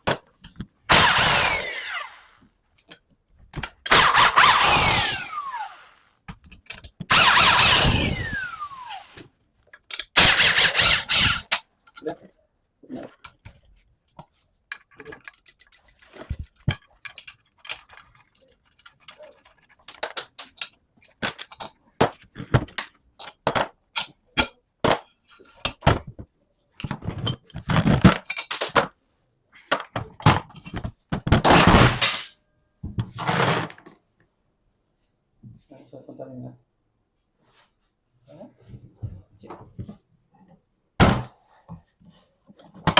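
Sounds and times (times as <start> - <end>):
metal tools clinking and knocking: 31.5 - 32.4.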